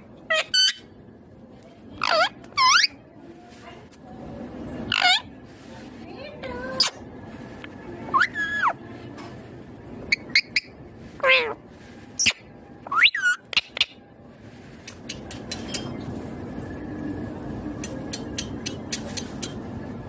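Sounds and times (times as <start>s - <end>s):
steady background noise: 0.0s - 20.0s
parrot squawking: 0.3s - 0.9s, 2.0s - 3.0s, 4.9s - 5.3s, 8.1s - 8.8s, 10.1s - 11.6s, 12.2s - 14.0s.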